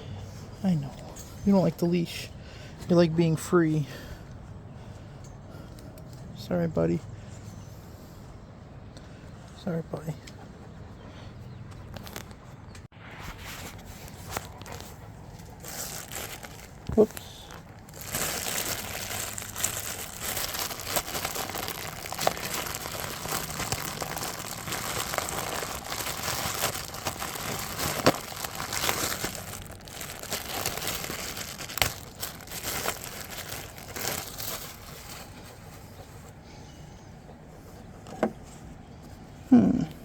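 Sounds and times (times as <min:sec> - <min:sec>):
handling rustling and crinkling: 0:11.8 - 0:39.5.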